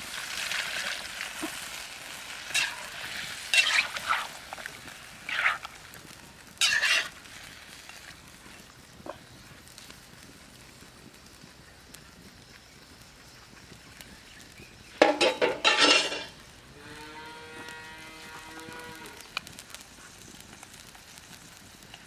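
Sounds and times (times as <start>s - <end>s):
curry sizzling in a pot: 0.0s - 22.0s
stirring in a pot: 0.1s - 8.1s.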